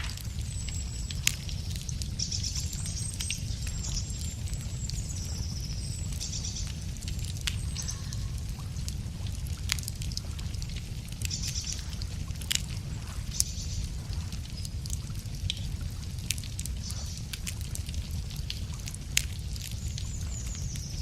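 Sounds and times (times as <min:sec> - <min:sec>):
songbird singing trills: 0:00.0 - 0:08.8
steady low rumble: 0:00.0 - 0:21.0
wood fire crackling: 0:00.0 - 0:21.0.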